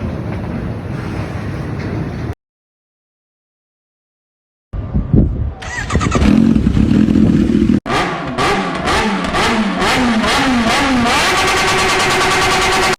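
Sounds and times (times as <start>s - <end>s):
motorcycle engine revving: 5.6s - 12.9s.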